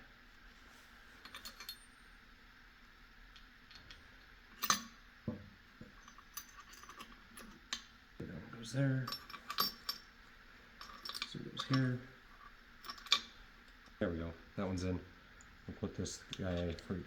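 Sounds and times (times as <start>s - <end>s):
metal gears clinking: 6.0s - 7.7s, 9.0s - 10.1s, 10.8s - 13.9s.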